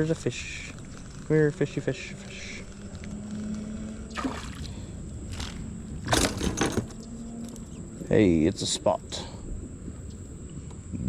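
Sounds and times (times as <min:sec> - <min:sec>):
water splashing: 0:03.2 - 0:05.7.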